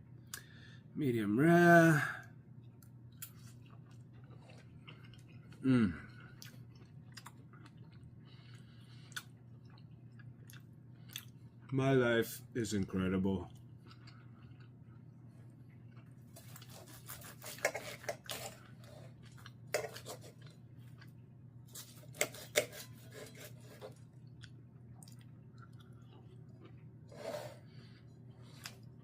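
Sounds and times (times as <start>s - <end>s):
low steady hum: 0.0s - 29.0s
knife and fork scraping a plate: 16.4s - 18.6s, 19.7s - 20.4s, 21.8s - 24.0s.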